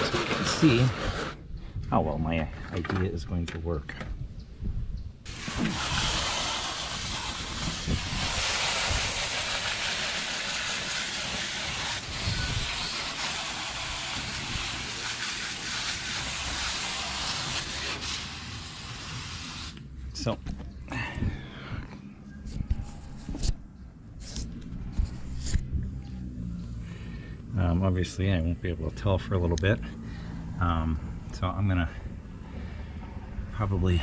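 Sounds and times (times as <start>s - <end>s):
water spraying on car underside: 5.3s - 19.8s.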